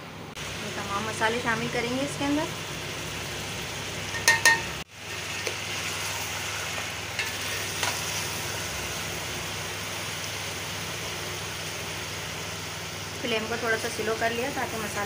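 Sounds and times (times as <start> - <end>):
chicken frying in oil: 0.4 - 15.0
metal plate clinking on pot: 4.1 - 4.7.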